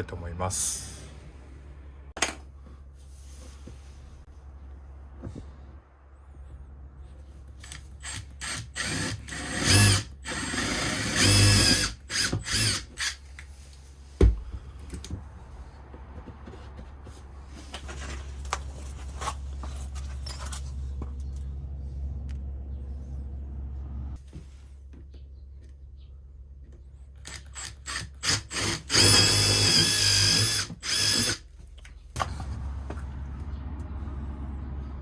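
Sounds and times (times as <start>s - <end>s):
electric drill whining: 7.6s - 13.2s, 27.2s - 31.4s.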